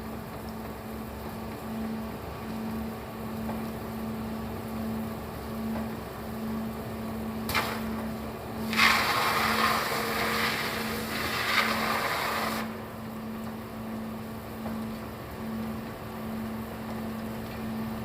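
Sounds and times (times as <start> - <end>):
welding arc crackling: 7.5 - 8.0, 8.6 - 12.7.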